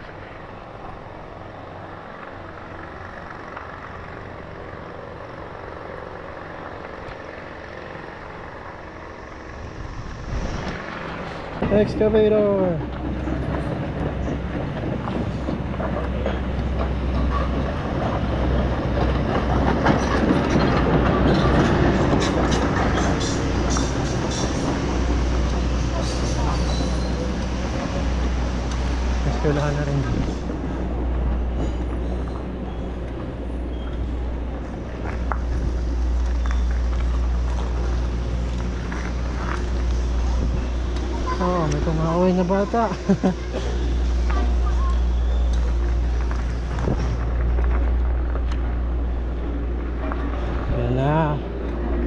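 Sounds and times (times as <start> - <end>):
tyres on rough road: 0.0 - 52.0
bicycle rattling: 1.8 - 52.0
wind buffeting microphone: 29.9 - 41.4, 45.4 - 52.0
bicycle tyres crunching on stones: 31.5 - 42.9, 43.7 - 51.8.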